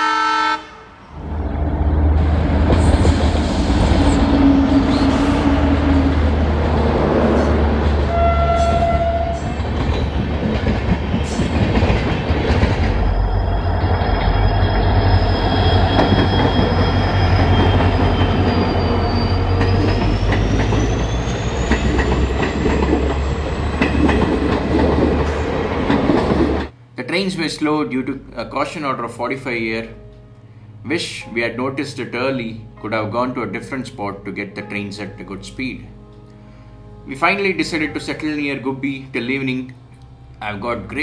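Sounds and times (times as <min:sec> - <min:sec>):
train horn note: 0:00.0 - 0:01.3, 0:07.2 - 0:09.6
diesel locomotive passing: 0:00.0 - 0:26.8, 0:37.0 - 0:41.0
train rumble: 0:01.1 - 0:26.8
wheels clicking over rails: 0:09.4 - 0:13.1, 0:19.5 - 0:26.7
high whine rising in pitch: 0:12.8 - 0:22.4.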